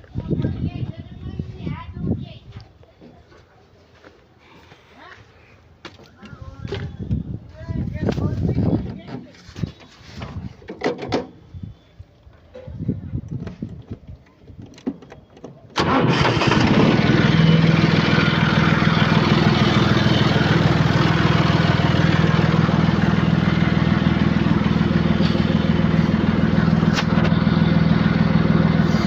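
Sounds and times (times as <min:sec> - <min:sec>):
diesel engine starting and running: 0:14.6 - 0:29.0.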